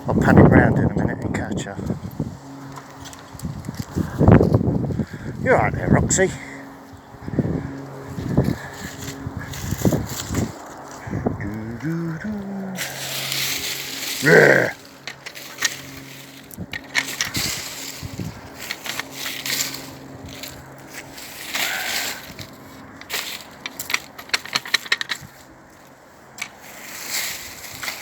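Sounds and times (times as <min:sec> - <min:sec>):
crunching and scraping debris: 0:07.7 - 0:28.0.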